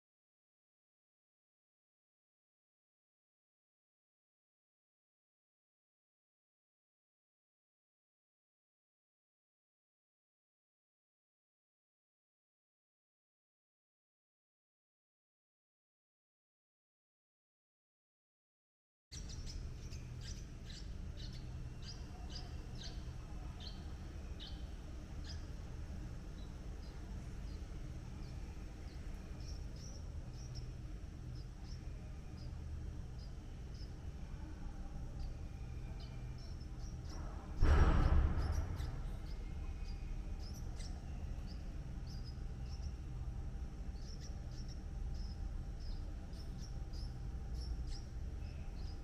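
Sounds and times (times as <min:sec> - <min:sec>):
bird chirping: 0:19.1 - 0:49.0
steady low rumble: 0:19.2 - 0:49.0.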